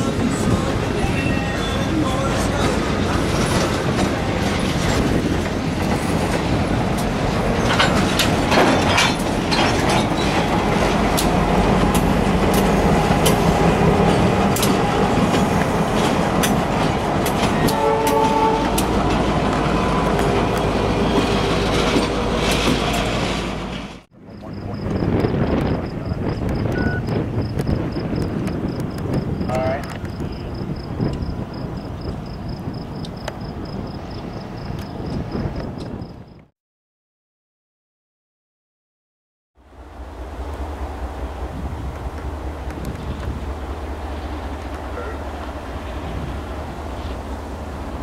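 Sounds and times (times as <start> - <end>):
train wheels clicking over rail joints: 2.5 - 24.0
brief tone: 26.7 - 27.1, 44.9 - 45.2.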